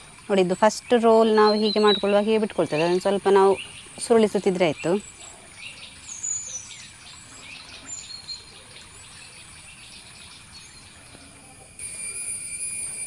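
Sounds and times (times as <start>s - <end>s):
birds chirping: 0.0s - 11.8s
steady high-pitched whine: 0.0s - 13.0s.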